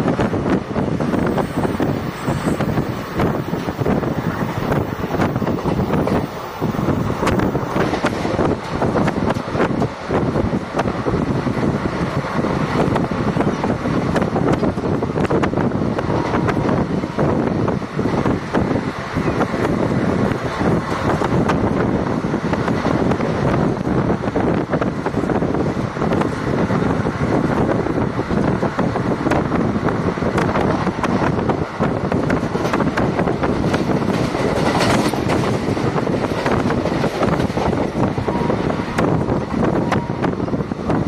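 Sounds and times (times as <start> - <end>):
train wheels rumbling on rails: 0.0 - 41.0
wheels clicking over rail joints: 1.1 - 11.1, 30.2 - 38.3.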